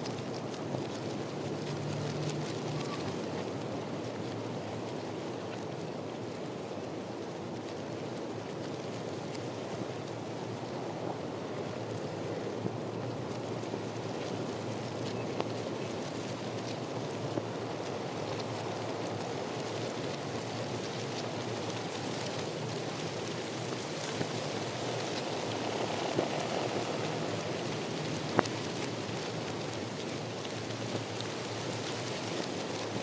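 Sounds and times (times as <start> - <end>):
steady rain falling: 0.0 - 33.0
rain drop ticks: 0.1 - 3.6, 11.7 - 33.0.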